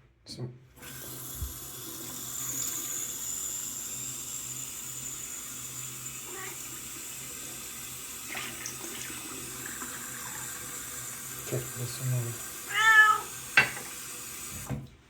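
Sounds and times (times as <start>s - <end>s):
cat meowing: 6.2s - 6.7s, 12.6s - 13.3s
tap running into sink: 13.4s - 14.9s.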